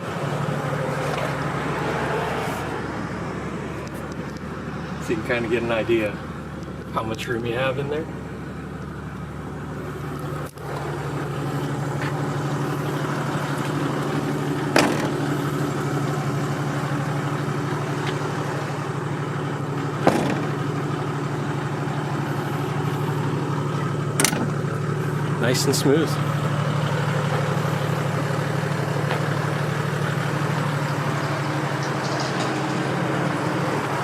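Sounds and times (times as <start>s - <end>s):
diesel engine idling: 0.0s - 34.0s
sharp knocks: 14.7s - 15.4s, 20.0s - 21.0s, 24.2s - 24.8s.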